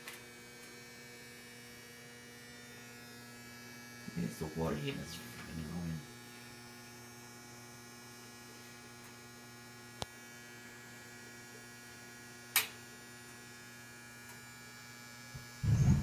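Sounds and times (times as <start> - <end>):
boiler electrical buzzing hum: 0.0 - 16.0
brief loud noise: 15.6 - 16.0.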